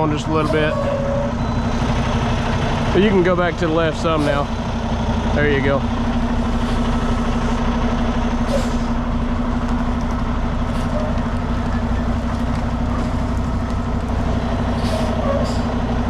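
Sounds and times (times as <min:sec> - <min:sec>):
diesel truck engine running: 0:00.0 - 0:16.0
air hisses: 0:14.7 - 0:15.8.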